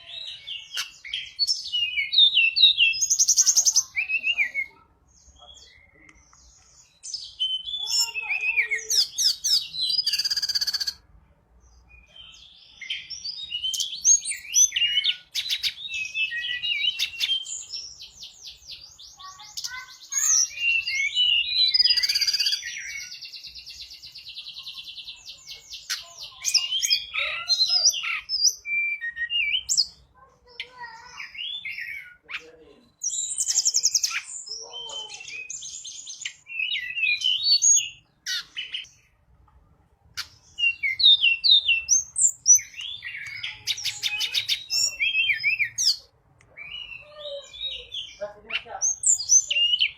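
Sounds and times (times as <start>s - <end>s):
bird whistles and chirps: 7.0s - 11.0s, 12.0s - 30.0s, 33.0s - 38.9s, 40.2s - 49.9s.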